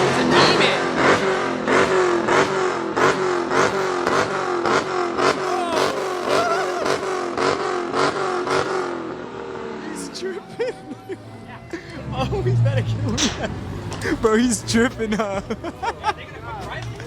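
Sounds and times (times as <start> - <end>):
car engine revving with crackle: 0.0 - 9.8.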